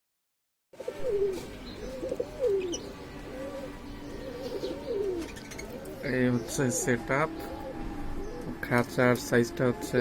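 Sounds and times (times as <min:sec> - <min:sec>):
dove cooing: 0:00.8 - 0:08.7.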